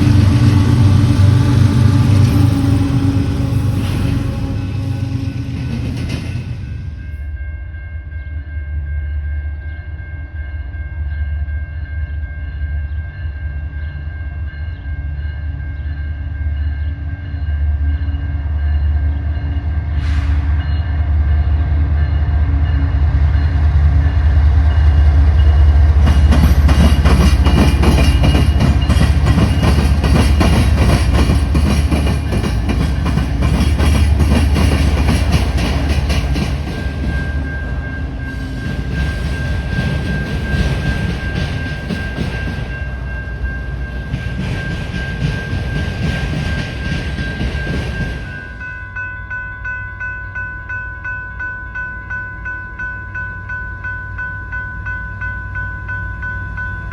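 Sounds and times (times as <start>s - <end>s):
train rumble and whine: 0.0s - 56.9s
wheels clattering on rail: 23.4s - 48.9s.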